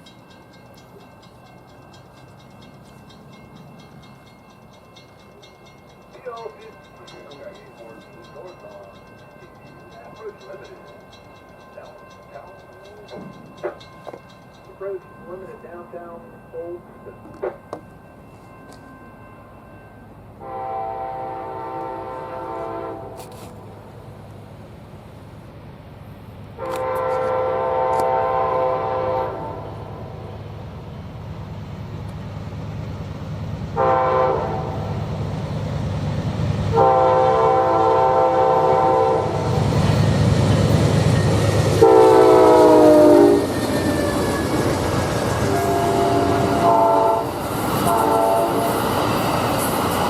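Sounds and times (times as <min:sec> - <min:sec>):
train engine and wheels rumbling: 0:00.0 - 0:50.0
train horn blasts: 0:20.4 - 0:23.4, 0:26.6 - 0:30.2, 0:33.8 - 0:35.0, 0:36.7 - 0:39.6, 0:41.2 - 0:43.5, 0:45.4 - 0:48.8.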